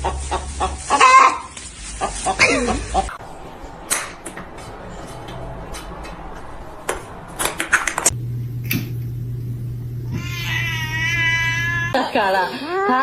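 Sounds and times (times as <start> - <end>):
low hum: 8.1 - 10.4
cat meowing: 10.1 - 12.0.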